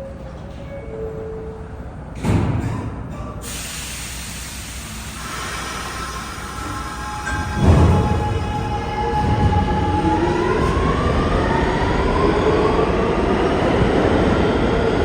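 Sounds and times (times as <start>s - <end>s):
subway train propulsion whine: 0.0s - 15.0s
wheels rumbling on rails: 7.3s - 15.0s.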